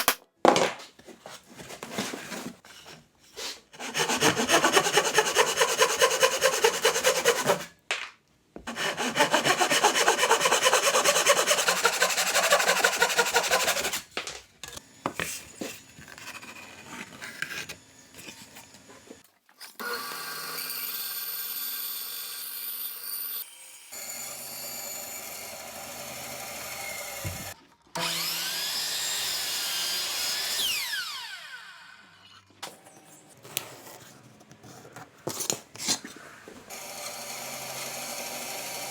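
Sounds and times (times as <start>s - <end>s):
hand tool strokes on wood: 2.3s - 7.7s, 8.7s - 14.1s.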